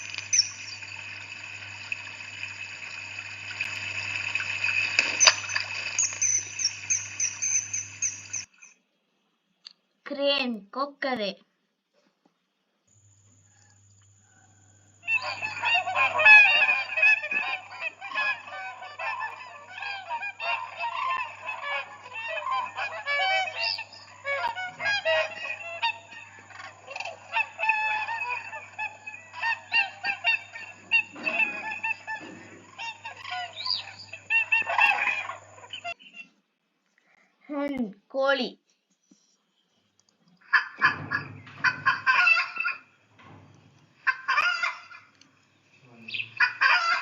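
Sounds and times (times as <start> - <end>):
cranes calling: 0.0 - 8.7, 13.4 - 36.2, 40.5 - 43.0, 44.0 - 45.2, 46.0 - 47.0.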